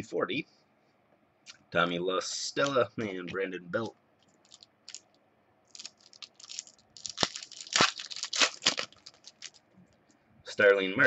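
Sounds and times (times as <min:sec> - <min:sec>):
wrapper tearing and crinkling: 0:04.4 - 0:05.1, 0:05.7 - 0:09.6.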